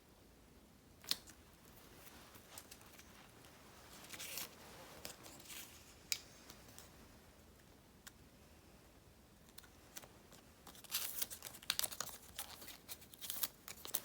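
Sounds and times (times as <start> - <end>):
paper rustling: 1.1 - 6.9, 9.5 - 14.0.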